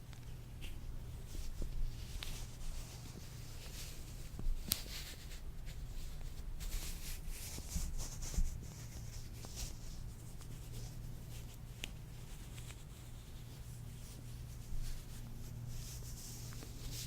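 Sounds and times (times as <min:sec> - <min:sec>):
small clicks and snaps: 0:04.6 - 0:04.9, 0:11.6 - 0:12.8.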